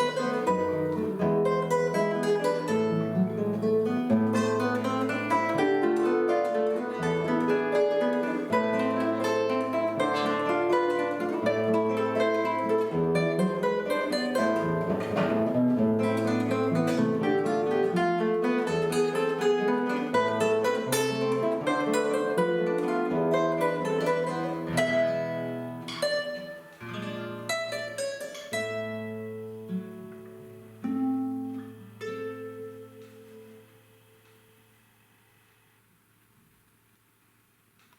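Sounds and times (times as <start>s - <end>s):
two guitars playing: 0.0s - 35.6s.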